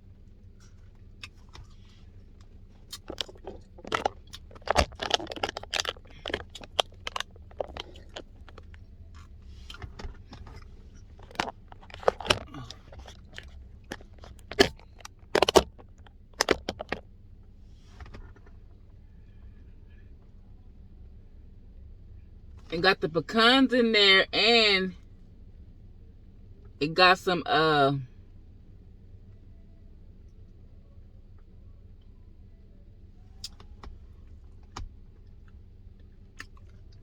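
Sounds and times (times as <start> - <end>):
chewing and crunching: 0.0 - 17.1, 33.3 - 37.0.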